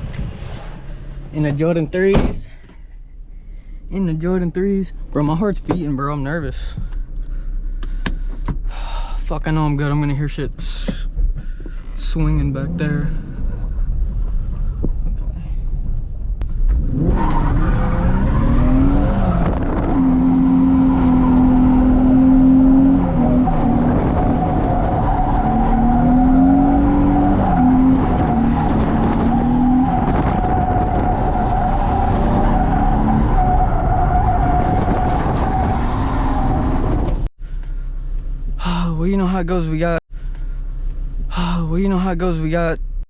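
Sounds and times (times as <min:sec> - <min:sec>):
car engine at high revs: 0:16.4 - 0:41.4
tires squealing: 0:16.7 - 0:37.3.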